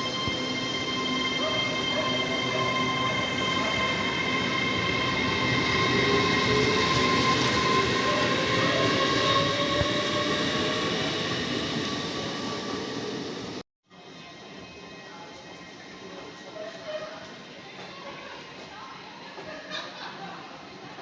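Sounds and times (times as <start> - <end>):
high whine of held tones: 0.0 - 13.6
train rumbling past: 0.0 - 13.6.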